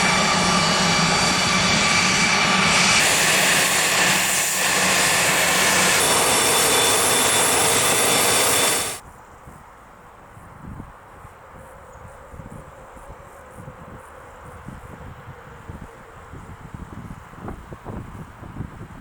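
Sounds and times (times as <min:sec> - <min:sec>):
jet engines whining: 0:00.0 - 0:09.0.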